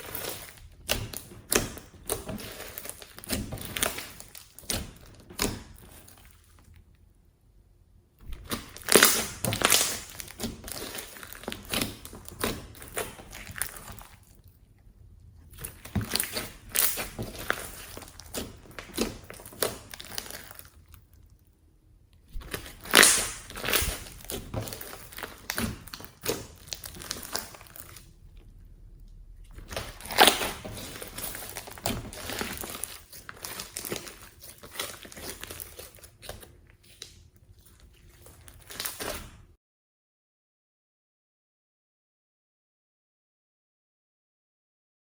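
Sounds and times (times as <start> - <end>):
slime being squished by hand: 0.0 - 6.7, 8.2 - 14.4, 15.5 - 21.1, 22.3 - 28.5, 29.1 - 39.4.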